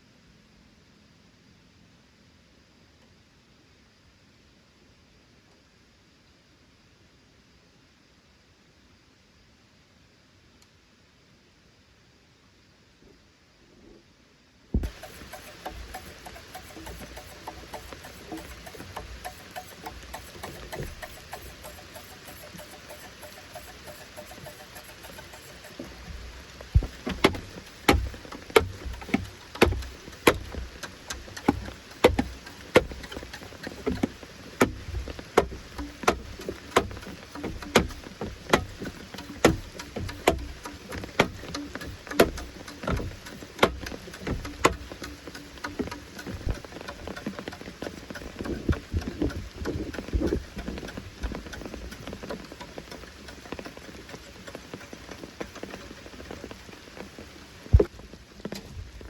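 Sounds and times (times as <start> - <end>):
light rain: 0.0 - 59.0
tool striking wood: 14.8 - 51.4.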